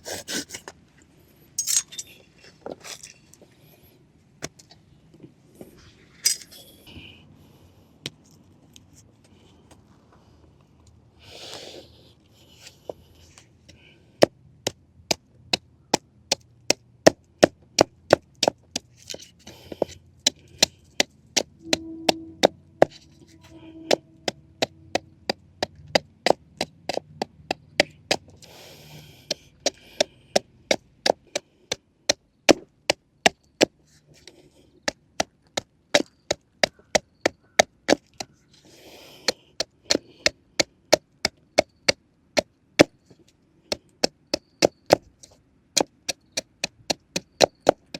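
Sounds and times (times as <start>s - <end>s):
wood being chopped: 32.1s - 33.8s, 45.8s - 47.9s.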